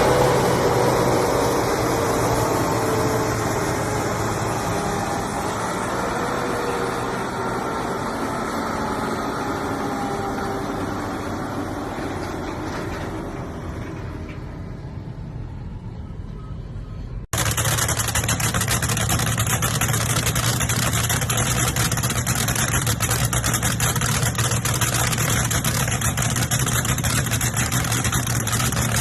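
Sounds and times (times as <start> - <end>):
car engine and exhaust running: 15.0 - 29.0.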